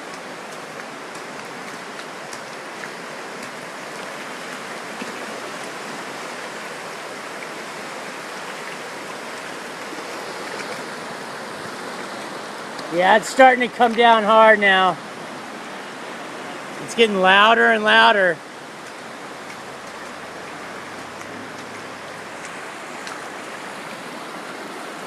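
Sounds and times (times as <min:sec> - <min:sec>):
falling rain: 0:00.0 - 0:25.0
river water rushing: 0:00.0 - 0:25.0.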